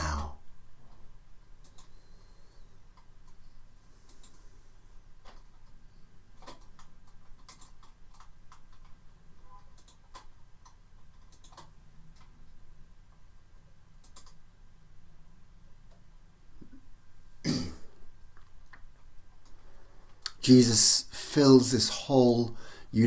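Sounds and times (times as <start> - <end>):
faint clicks and ticks: 0.8 - 14.6, 18.3 - 20.4.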